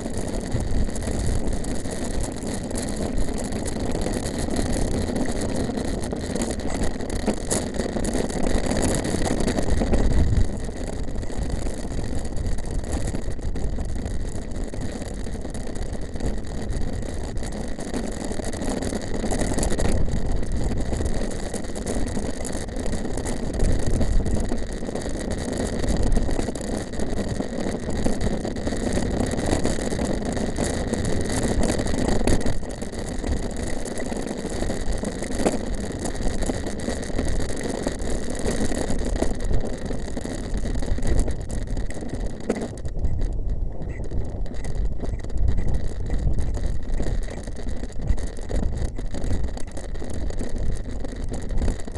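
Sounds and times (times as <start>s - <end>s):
tyres rolling over rough trail: 0.0s - 51.9s
wind buffeting microphone: 9.2s - 17.6s, 40.5s - 51.9s.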